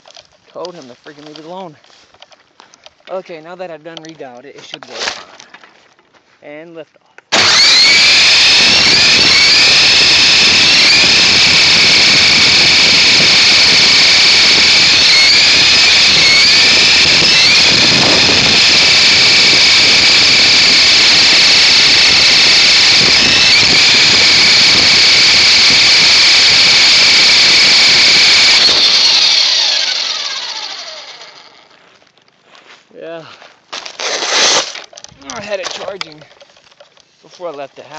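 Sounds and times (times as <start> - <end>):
toy helicopter motor whine: 7.3 - 31.7, 34.1 - 34.9.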